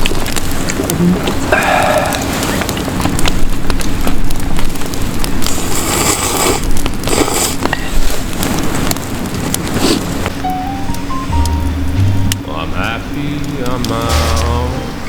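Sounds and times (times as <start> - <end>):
wood fire crackling and popping: 0.0 - 15.0
hissing bursts: 12.6 - 15.0.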